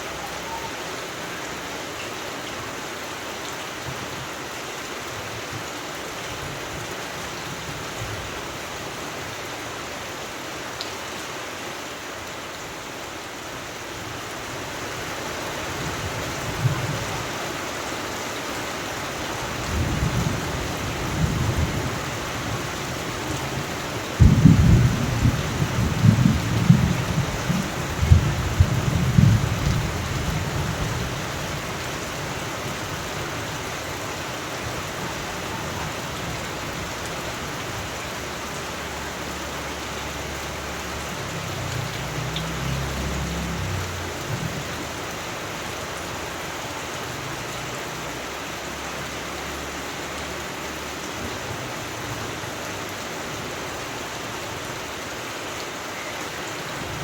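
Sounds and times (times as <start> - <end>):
steady rain: 0.0 - 57.0
thunder rumbling: 23.2 - 31.7.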